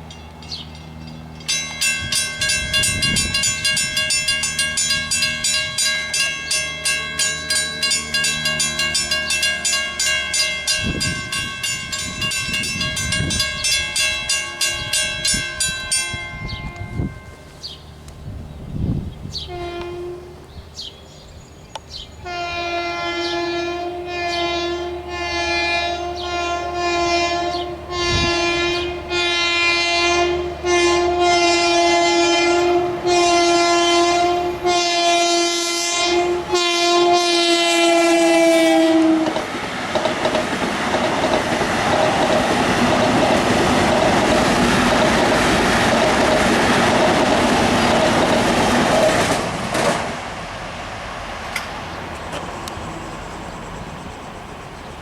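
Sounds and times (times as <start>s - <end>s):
train wheels clacking over rails: 0.4s - 17.8s, 37.3s - 50.5s
train air horn blasts: 19.4s - 20.5s, 22.2s - 39.4s.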